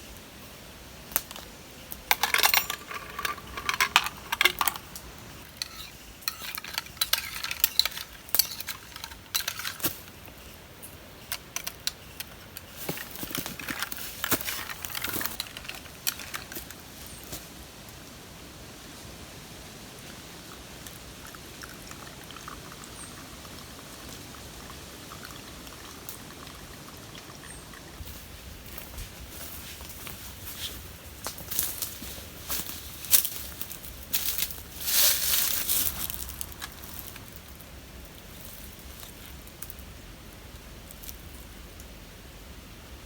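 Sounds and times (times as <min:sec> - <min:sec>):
metal cookware clinking and scraping: 0:02.1 - 0:04.8, 0:05.6 - 0:09.8.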